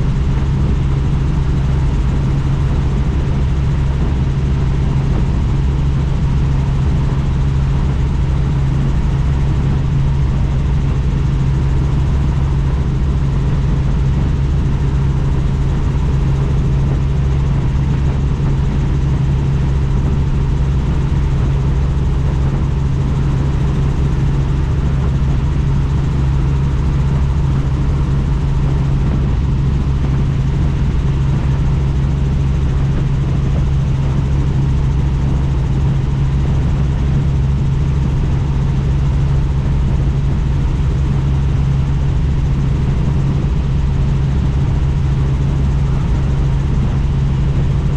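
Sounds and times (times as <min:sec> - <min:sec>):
helicopter rotor and engine drone: 0:00.0 - 0:47.9.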